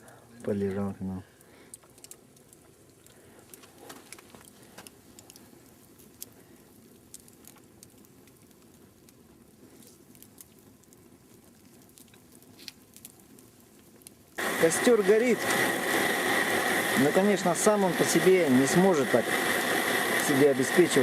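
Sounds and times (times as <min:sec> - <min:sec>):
campfire crackling: 0:00.0 - 0:21.0
fire pops and ticks: 0:00.0 - 0:21.0.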